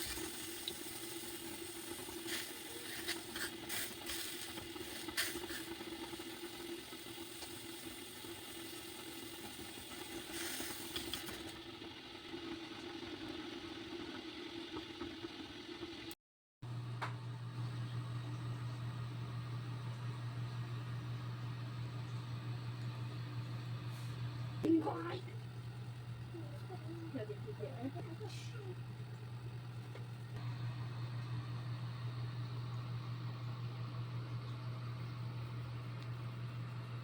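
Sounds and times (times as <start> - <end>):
steady mechanical hum: 16.7 - 37.0.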